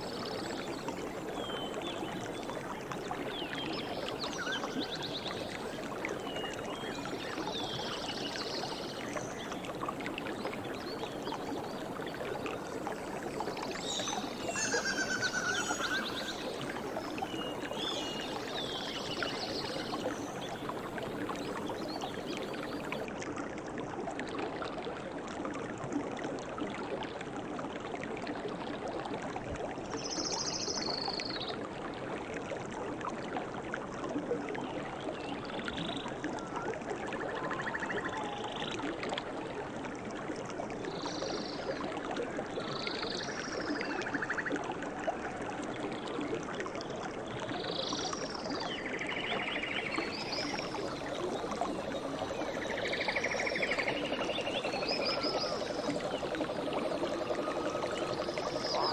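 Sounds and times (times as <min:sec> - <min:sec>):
stream water trickling: 0:00.0 - 0:58.9.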